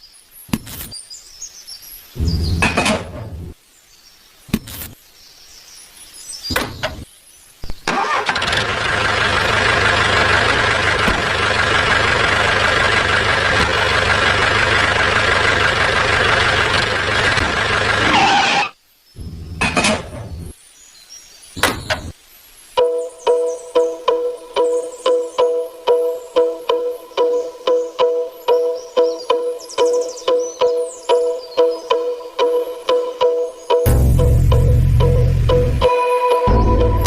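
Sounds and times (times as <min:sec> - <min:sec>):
motor running: 0:08.4 - 0:18.6.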